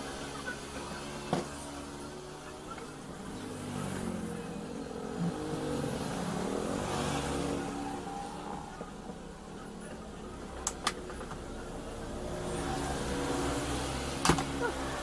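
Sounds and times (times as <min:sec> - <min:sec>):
vehicle engine running: 0:00.0 - 0:15.0
sharp click: 0:10.6 - 0:11.0, 0:14.2 - 0:14.6.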